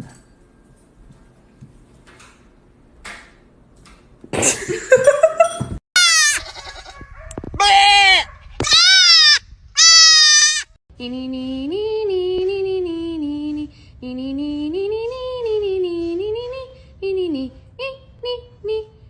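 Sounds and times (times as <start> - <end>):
high bleat-like animal call: 6.0 - 7.0, 7.6 - 10.7
person singing slow melody: 10.9 - 19.0.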